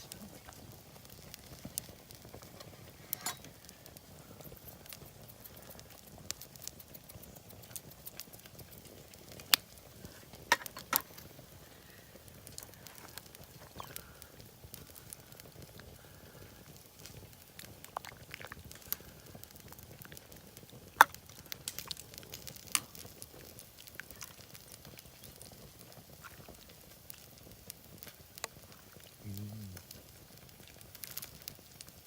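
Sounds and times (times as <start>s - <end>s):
faint background noise: 0.0s - 32.0s.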